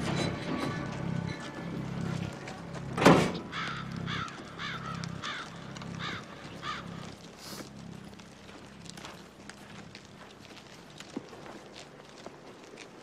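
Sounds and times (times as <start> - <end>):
low steady hum: 0.0 - 12.8
bird cawing: 3.4 - 7.1.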